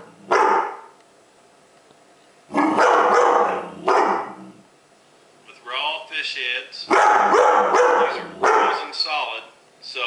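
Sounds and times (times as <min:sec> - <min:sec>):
dog barking loudly: 0:00.0 - 0:01.0, 0:02.5 - 0:04.5, 0:06.9 - 0:09.0.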